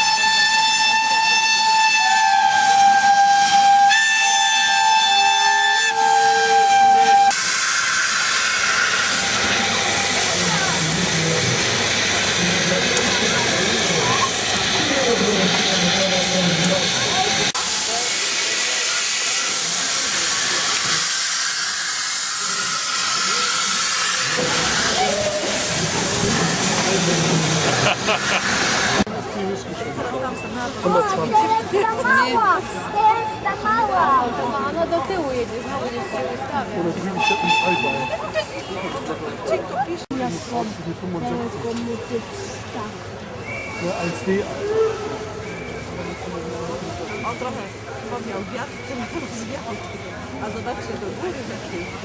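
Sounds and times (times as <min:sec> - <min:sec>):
steam locomotive whistle: 0:00.0 - 0:10.4, 0:37.2 - 0:38.2
steam hissing: 0:06.0 - 0:29.1
voices of onlookers: 0:22.4 - 0:28.4, 0:29.0 - 0:52.0.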